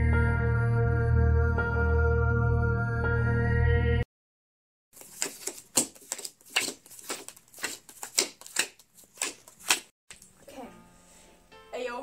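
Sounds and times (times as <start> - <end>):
ambient music: 0.0 - 4.1.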